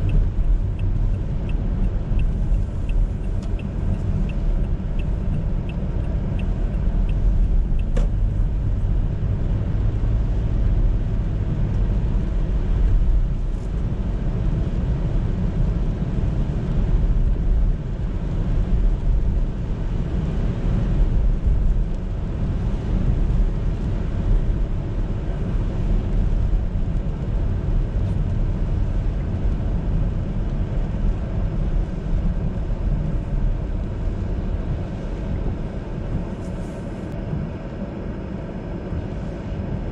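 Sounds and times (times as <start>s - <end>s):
light ticks: 0.0s - 8.3s
car engine and tyre rumble: 0.0s - 39.9s.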